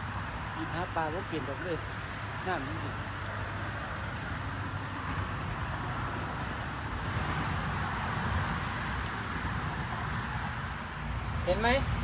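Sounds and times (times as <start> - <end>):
wind buffeting microphone: 3.0 - 12.0.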